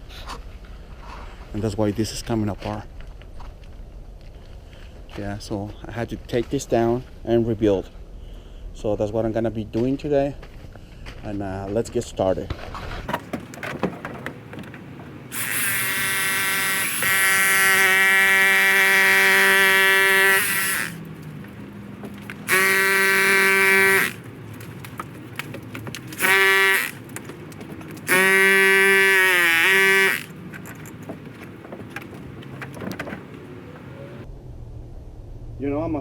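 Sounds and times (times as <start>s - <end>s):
power tool motor running: 15.3s - 21.1s, 22.4s - 24.2s, 26.1s - 27.1s, 27.8s - 30.4s.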